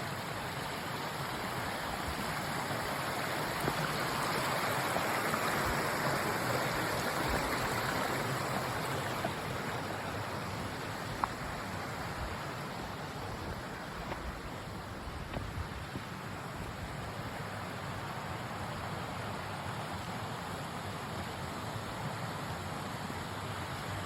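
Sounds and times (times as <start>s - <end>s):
creek water rushing over rocks: 0.0s - 24.0s.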